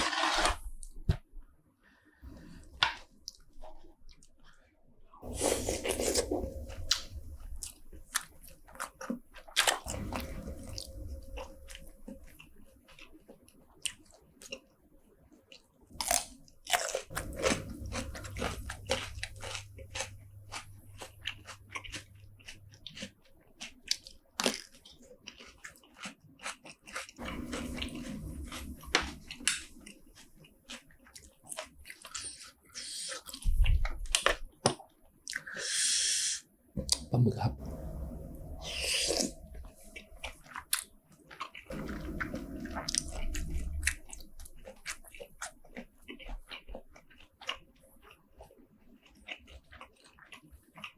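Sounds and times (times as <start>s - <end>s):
chewing and biting seafood: 5.2s - 14.7s, 15.5s - 35.7s, 37.6s - 50.9s
wet mouth clicks: 34.2s - 36.0s.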